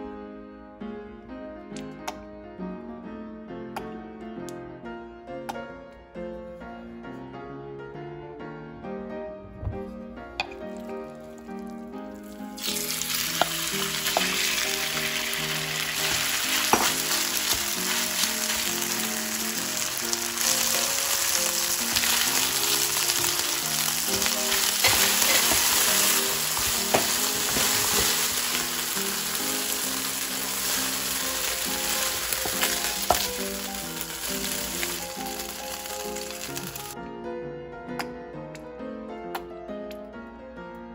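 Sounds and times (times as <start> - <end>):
meat sizzling in hot oil: 10.8 - 37.0
spatula tapping pan: 16.0 - 18.0, 24.2 - 28.6, 31.9 - 33.4.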